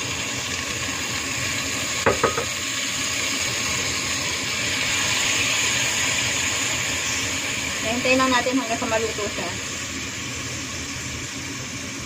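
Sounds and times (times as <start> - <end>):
meat sizzling in a pot: 0.0 - 12.0
dishware clinking against pot: 2.1 - 2.5.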